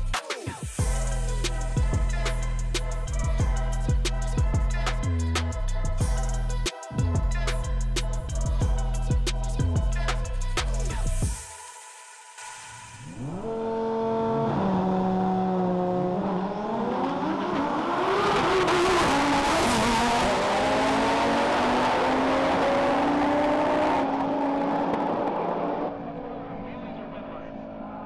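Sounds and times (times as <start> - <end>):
car engine accelerating hard: 13.0 - 28.0.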